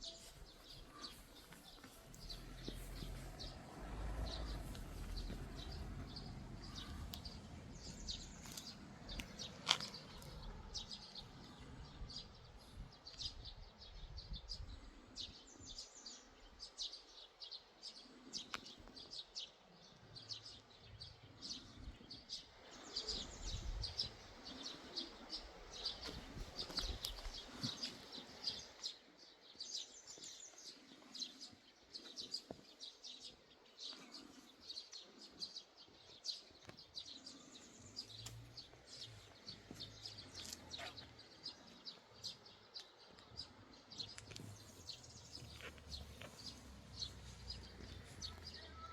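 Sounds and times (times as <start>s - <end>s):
small birds chirping: 0.0s - 48.9s
low rumble: 2.2s - 12.8s.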